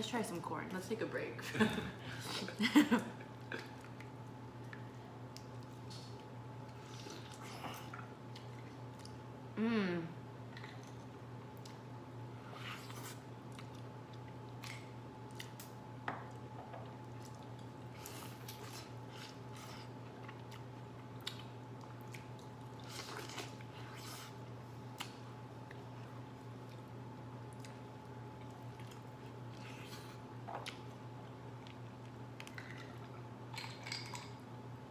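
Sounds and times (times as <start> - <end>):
steady low hum: 0.0 - 34.9
chewing corn on the cob: 16.9 - 33.3.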